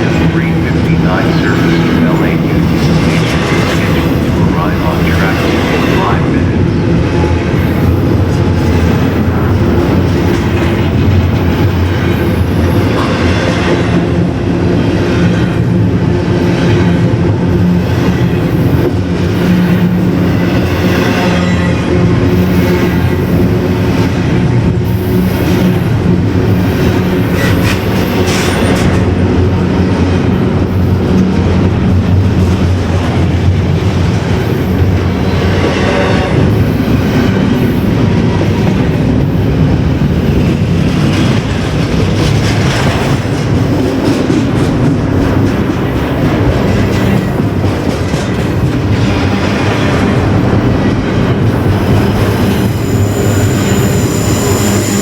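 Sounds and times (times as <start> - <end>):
train wheels rumbling on rails: 0.0 - 55.0
high wheel squeals: 52.2 - 55.0.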